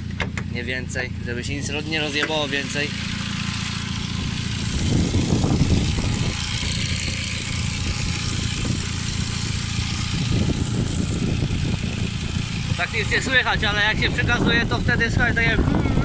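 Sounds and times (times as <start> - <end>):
car engine idling: 0.0 - 16.0
wind on microphone: 4.2 - 16.0.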